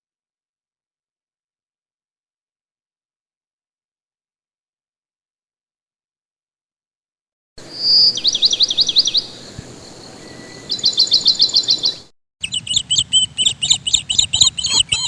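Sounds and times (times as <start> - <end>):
small birds chirping: 7.6 - 15.0.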